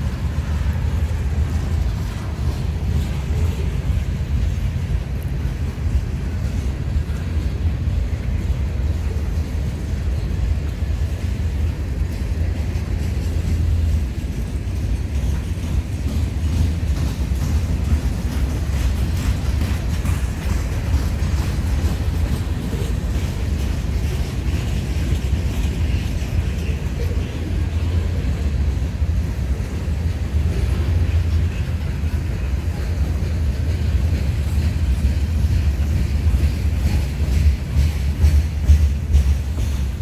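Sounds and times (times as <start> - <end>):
freight train rumbling past: 0.0 - 40.0.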